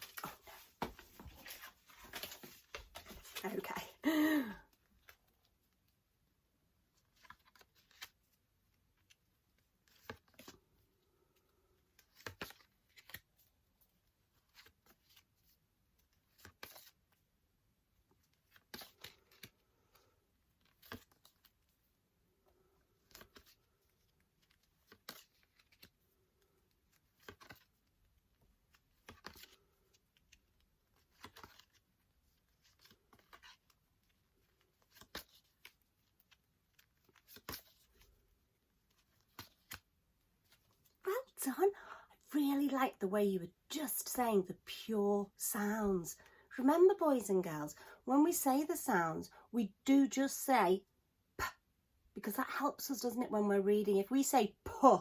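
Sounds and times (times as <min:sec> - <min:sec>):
paper flashcards flipping: 0:00.0 - 0:03.7, 0:07.0 - 0:08.4, 0:09.8 - 0:10.6, 0:11.9 - 0:13.4, 0:14.4 - 0:17.2, 0:18.2 - 0:21.6, 0:23.0 - 0:26.0, 0:27.0 - 0:27.9, 0:28.7 - 0:38.1, 0:38.9 - 0:41.0.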